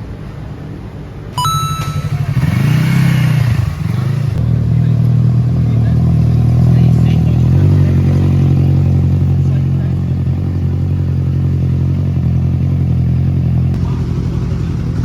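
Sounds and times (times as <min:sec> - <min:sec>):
short high beep: 0:01.4 - 0:02.9
motorcycle engine revving: 0:02.0 - 0:15.0.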